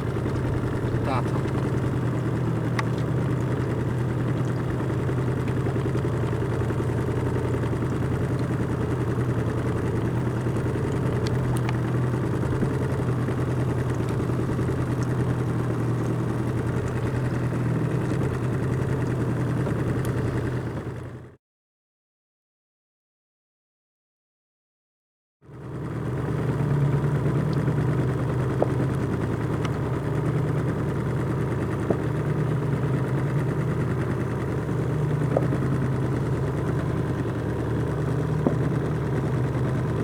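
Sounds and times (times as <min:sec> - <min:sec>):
outboard motor droning: 0:00.0 - 0:21.4, 0:25.4 - 0:40.0.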